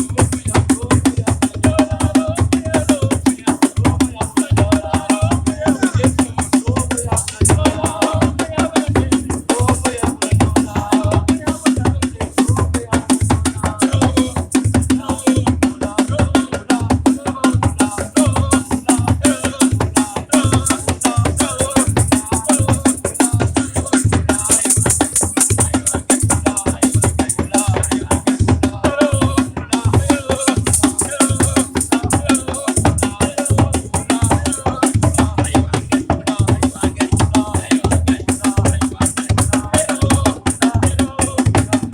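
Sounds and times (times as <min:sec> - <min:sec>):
steady drum beat: 0:00.0 - 0:41.9
voices singing: 0:00.0 - 0:41.9
shakers rattling: 0:20.3 - 0:28.2, 0:30.1 - 0:35.4.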